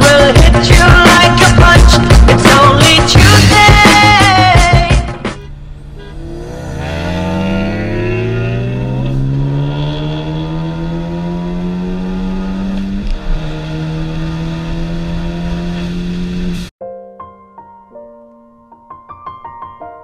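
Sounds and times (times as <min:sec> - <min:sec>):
car engine accelerating: 0:05.2 - 0:16.7.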